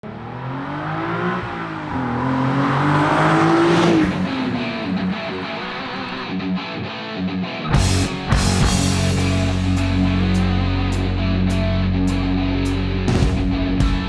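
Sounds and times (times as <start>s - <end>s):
car engine revving: 0.0s - 6.2s
rock music with guitar: 4.0s - 14.0s.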